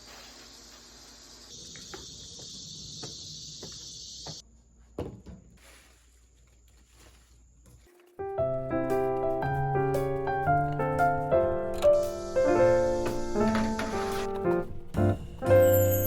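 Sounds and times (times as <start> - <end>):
crickets chirring: 0.0 - 5.0.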